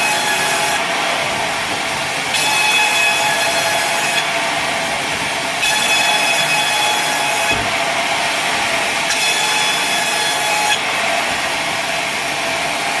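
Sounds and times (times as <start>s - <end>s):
saw blade cutting timber: 0.0s - 1.5s, 2.3s - 4.8s, 5.6s - 7.9s, 9.0s - 11.4s.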